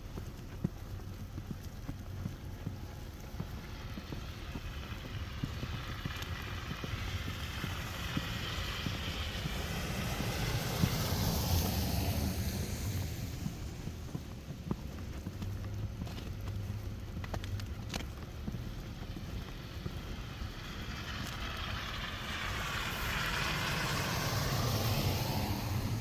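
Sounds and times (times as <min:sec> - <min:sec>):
footsteps crunching in snow: 0:00.0 - 0:26.0
vehicle passing: 0:02.1 - 0:17.6, 0:18.3 - 0:26.0.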